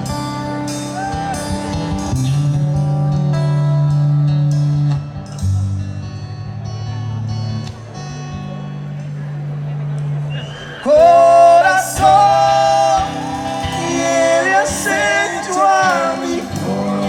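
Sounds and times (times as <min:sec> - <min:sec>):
live band playing: 0:00.0 - 0:05.6, 0:11.0 - 0:17.0.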